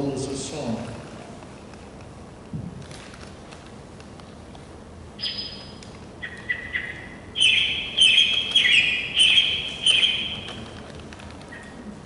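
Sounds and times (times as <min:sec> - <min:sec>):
recorded bird call: 0:05.2 - 0:10.8.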